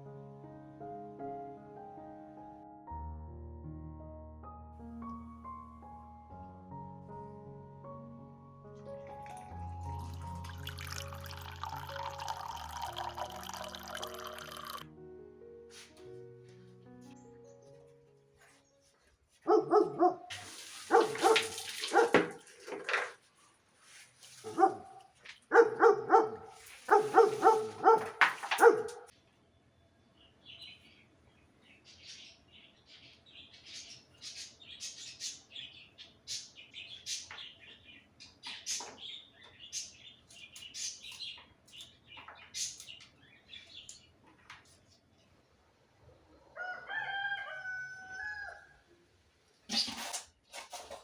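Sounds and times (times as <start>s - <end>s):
dog barking: 19.4s - 22.4s, 24.4s - 29.1s
small birds chirping: 30.1s - 44.4s.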